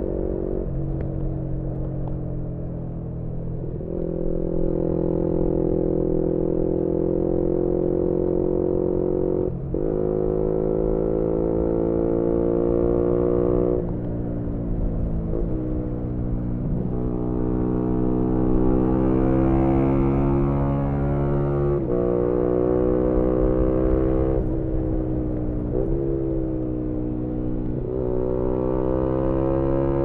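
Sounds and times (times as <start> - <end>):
motorcycle engine revving: 3.8 - 13.9, 16.6 - 30.0.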